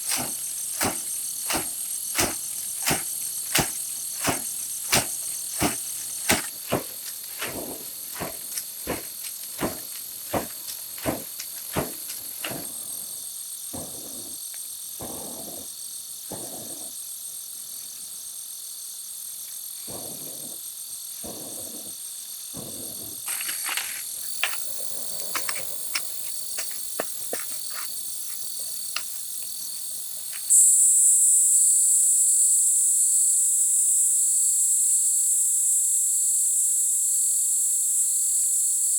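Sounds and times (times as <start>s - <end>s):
high-pitched insect chorus: 0.0s - 38.9s
scraping and rustling: 23.2s - 30.5s
loud shrill insect buzz: 23.3s - 38.9s.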